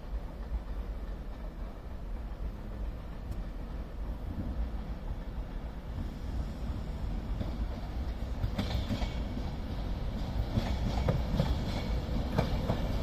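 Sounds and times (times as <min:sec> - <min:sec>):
electric train rumbling: 0:00.0 - 0:13.0
wheels clicking over rail joints: 0:07.3 - 0:13.0.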